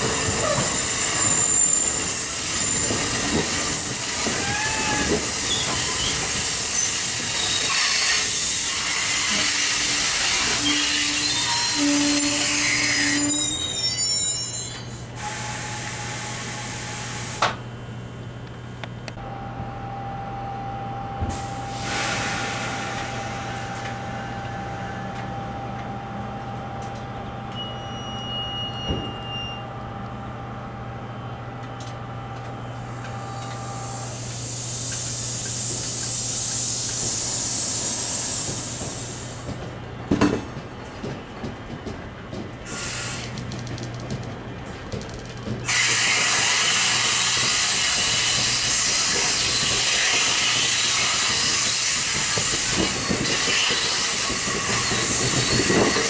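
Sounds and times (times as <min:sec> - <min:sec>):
loud rush of train noise: 0:00.0 - 0:56.0
train rolling with low hum: 0:00.0 - 0:56.0
hiss: 0:21.7 - 0:23.6, 0:33.9 - 0:39.5, 0:42.7 - 0:43.3.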